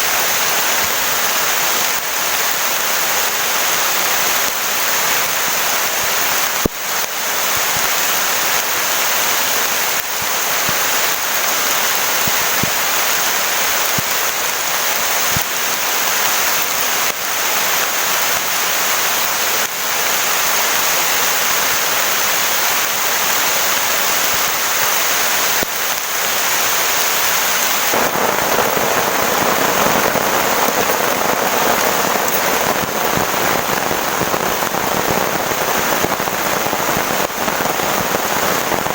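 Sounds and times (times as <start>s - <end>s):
heavy rain pouring: 0.0s - 38.9s
sharp raindrop strikes: 0.0s - 38.9s.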